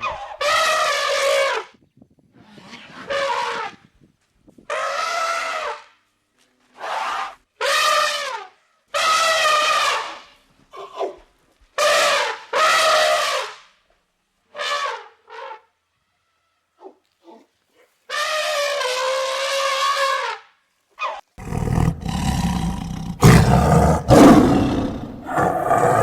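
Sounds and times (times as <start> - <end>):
animal honking calls: 21.4 - 26.0.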